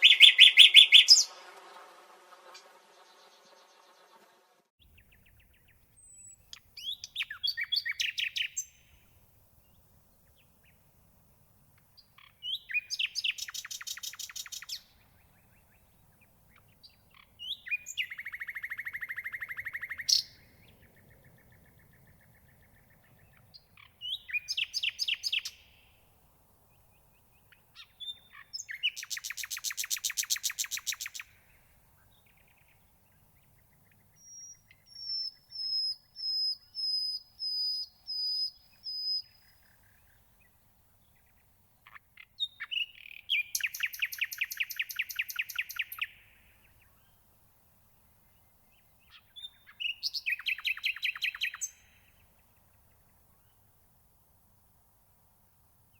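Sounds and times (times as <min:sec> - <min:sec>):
nightingale singing: 0:00.0 - 0:01.4, 0:04.8 - 0:09.0, 0:12.0 - 0:25.9, 0:26.7 - 0:40.4, 0:42.2 - 0:47.1, 0:48.3 - 0:53.6.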